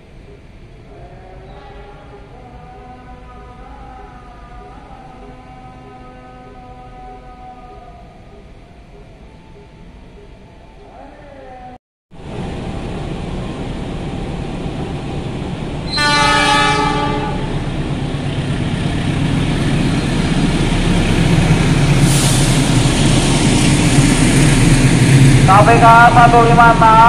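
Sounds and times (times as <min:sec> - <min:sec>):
train rumble and wheel noise: 0:00.0 - 0:27.0
diesel locomotive horn: 0:15.9 - 0:17.7.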